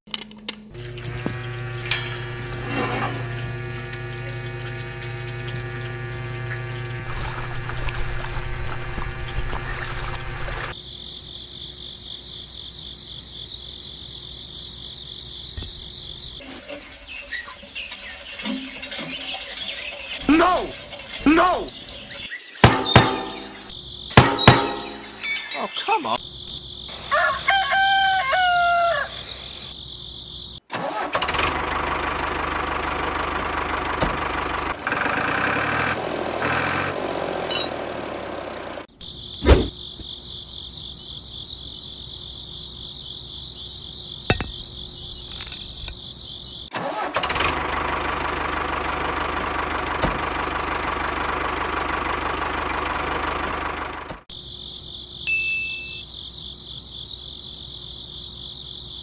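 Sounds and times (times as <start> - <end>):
small motor whirring: 0.8 - 10.8
crickets chirring: 3.2 - 30.7, 38.9 - 46.7, 54.2 - 59.0
rooster crowing: 27.0 - 29.7.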